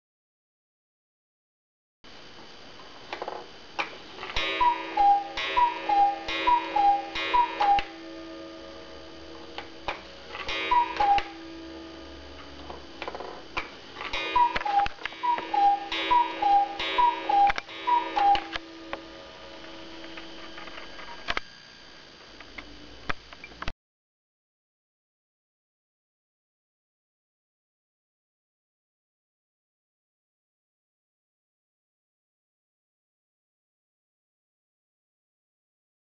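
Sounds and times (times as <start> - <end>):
clock mechanism clicks: 3.8 - 21.5
cuckoo clock call: 4.2 - 20.4
clock ticking: 4.3 - 8.7, 9.5 - 13.2, 14.0 - 20.2
ringing gong strikes: 4.3 - 21.3.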